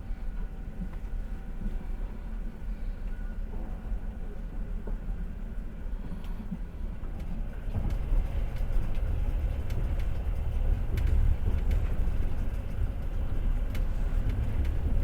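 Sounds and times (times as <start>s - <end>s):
train wheels rumbling: 7.3s - 15.0s.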